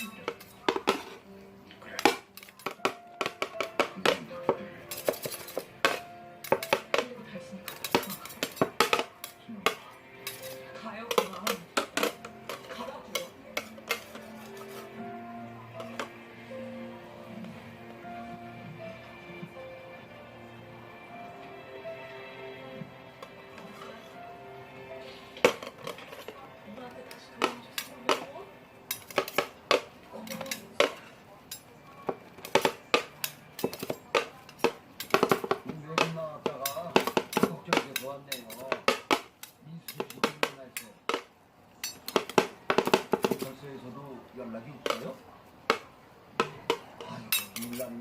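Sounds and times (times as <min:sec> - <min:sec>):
tableware clinking: 0:00.0 - 0:01.3, 0:01.9 - 0:15.1, 0:15.7 - 0:16.3, 0:25.0 - 0:26.5, 0:27.4 - 0:28.3, 0:28.9 - 0:43.6, 0:44.8 - 0:48.0
soft background music: 0:00.0 - 0:48.0.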